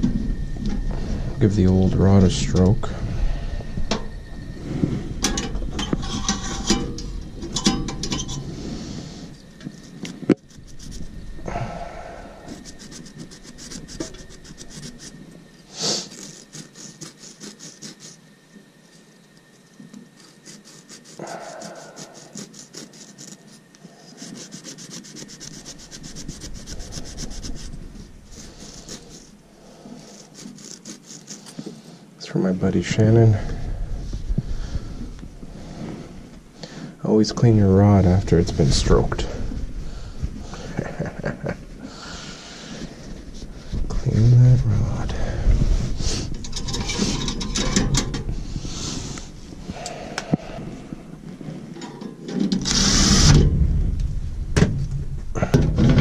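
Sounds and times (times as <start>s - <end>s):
abrasive rasping on metal rod: 12.3s - 18.3s, 20.1s - 31.7s.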